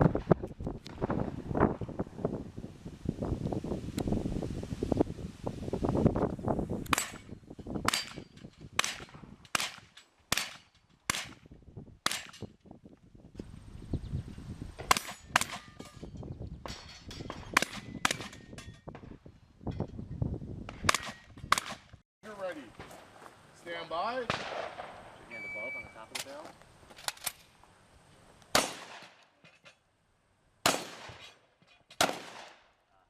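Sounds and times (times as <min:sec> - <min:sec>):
shotgun shots: 0:06.9 - 0:11.4, 0:12.0 - 0:12.5, 0:20.8 - 0:21.9, 0:24.2 - 0:25.2, 0:28.5 - 0:29.2, 0:30.6 - 0:31.4, 0:32.0 - 0:32.7.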